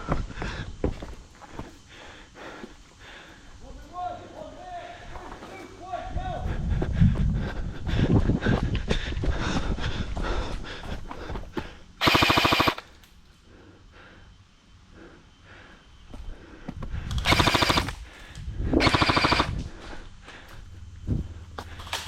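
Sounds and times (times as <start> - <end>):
airsoft gun bursts: 12.0 - 13.0, 17.2 - 18.1, 18.8 - 19.6.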